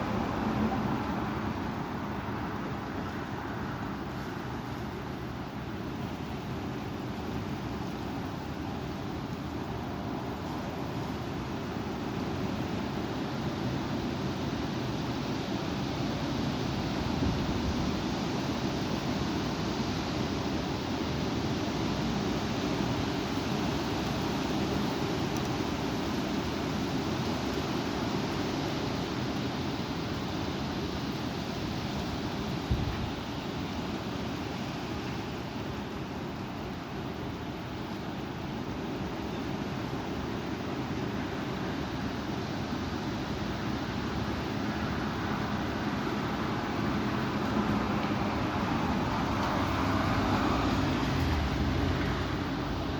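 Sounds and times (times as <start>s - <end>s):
strong wind blowing: 25.6s - 35.6s.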